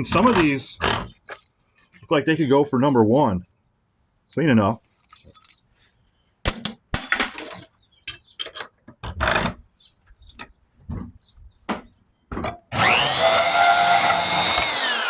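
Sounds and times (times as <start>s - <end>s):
metal rods clinking: 4.3s - 5.7s
bandsaw motor whining: 12.7s - 15.0s.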